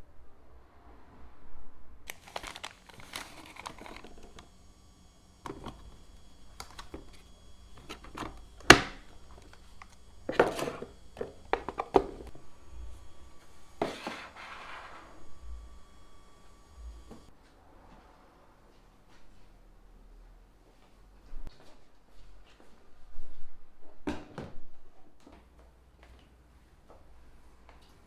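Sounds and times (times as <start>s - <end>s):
objects handled with clicks and taps: 5.4s - 12.4s.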